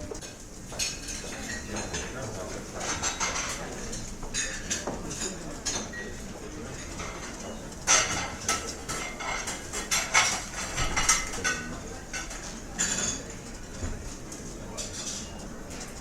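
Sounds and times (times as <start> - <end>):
dishes and cutlery clinking: 0.0 - 16.0.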